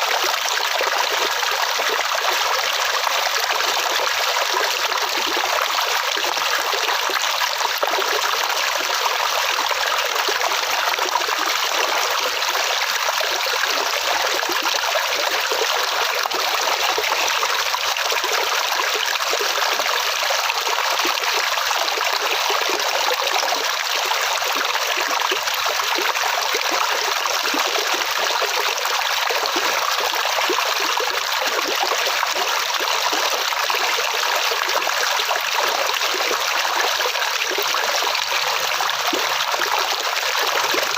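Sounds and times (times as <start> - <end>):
stream running and trickling: 0.0 - 40.9.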